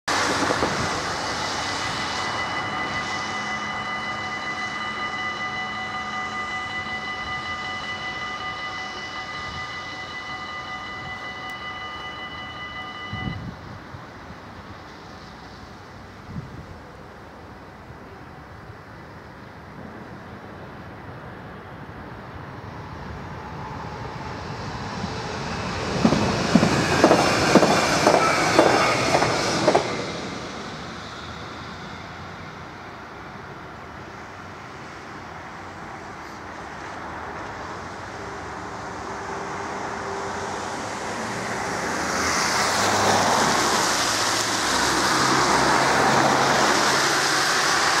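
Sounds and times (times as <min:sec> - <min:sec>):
passenger train passing: 0:00.1 - 0:48.0
wheels clacking over rail joints: 0:25.9 - 0:30.0.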